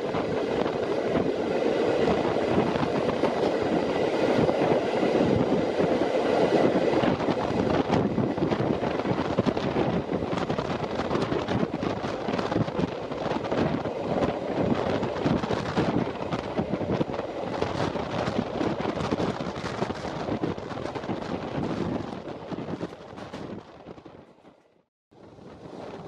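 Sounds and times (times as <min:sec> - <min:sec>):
wind buffeting microphone: 0:00.0 - 0:24.6, 0:25.2 - 0:26.0
train rumbling at speed: 0:00.0 - 0:26.0.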